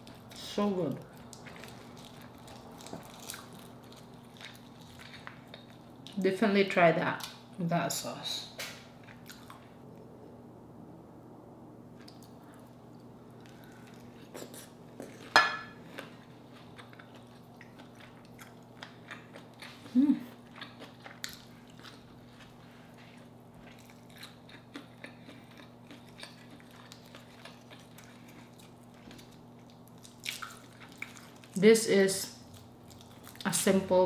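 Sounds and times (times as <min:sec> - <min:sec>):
steady low hum: 0:00.0 - 0:34.0
wet chewing sounds: 0:01.0 - 0:06.2, 0:08.9 - 0:10.1, 0:12.0 - 0:31.6, 0:32.3 - 0:33.5.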